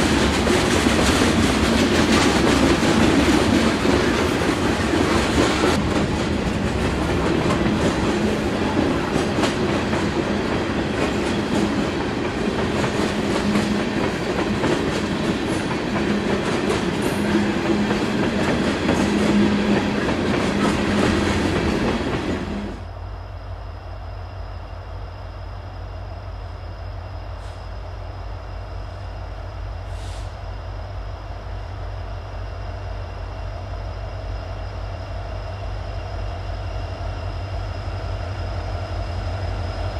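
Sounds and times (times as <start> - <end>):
train cars clattering on rails: 0.0 - 22.8.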